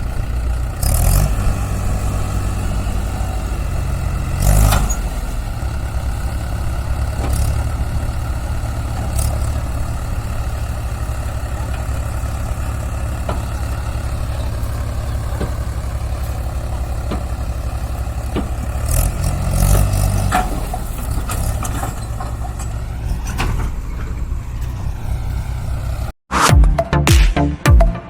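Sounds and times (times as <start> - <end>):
diesel engine idling and revving: 0.0 - 26.2
engine knocks: 0.0 - 26.8
music: 26.3 - 28.0.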